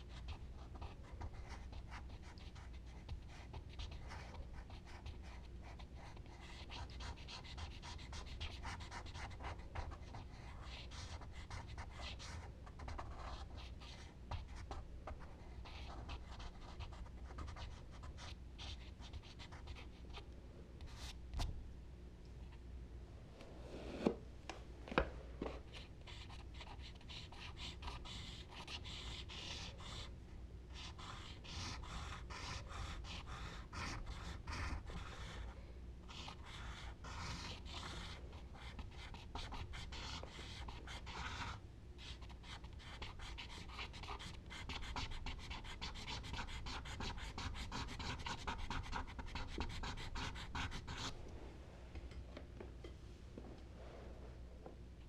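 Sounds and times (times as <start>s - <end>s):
charcoal scratching on paper: 30.7s - 35.5s, 36.1s - 51.2s.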